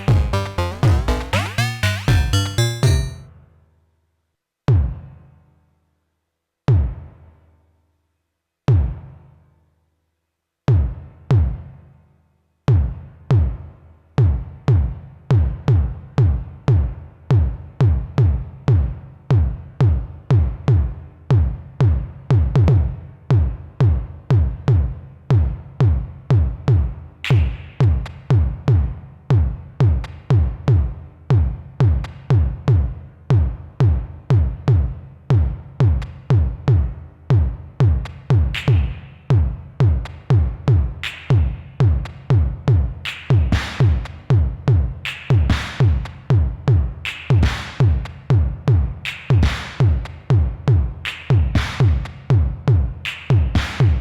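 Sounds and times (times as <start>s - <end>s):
punchy low synth notes: 0.0s - 3.2s.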